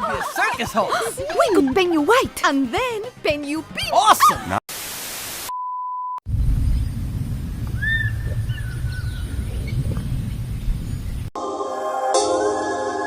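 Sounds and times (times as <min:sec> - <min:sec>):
low rumbling outdoor noise: 0:06.3 - 0:11.3
bird chirps: 0:07.8 - 0:11.3.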